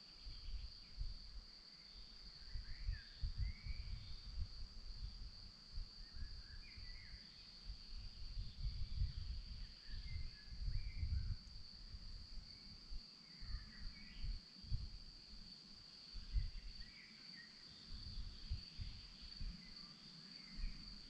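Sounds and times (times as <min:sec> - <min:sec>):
chorus of crickets: 0:00.0 - 0:21.0.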